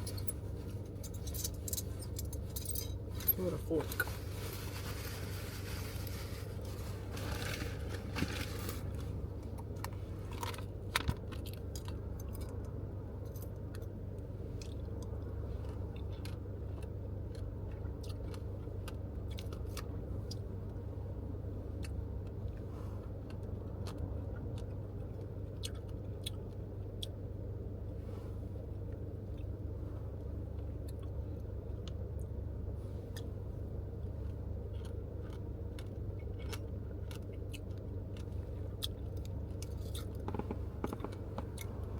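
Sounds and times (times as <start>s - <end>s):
car engine idling: 0.0s - 41.9s
fork clicks and chewing: 9.5s - 14.0s, 14.6s - 20.5s, 21.8s - 27.2s, 34.6s - 41.9s.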